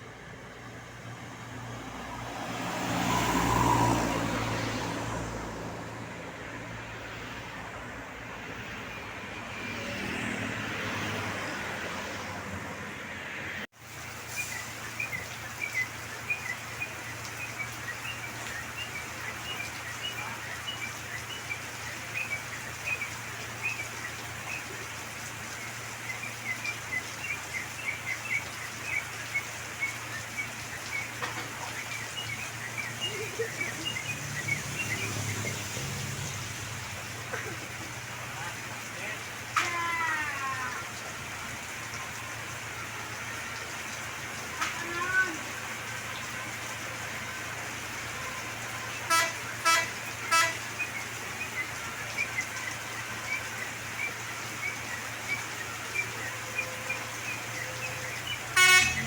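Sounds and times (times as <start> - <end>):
road noise: 0.0 - 59.0
birds chirping: 14.3 - 59.0.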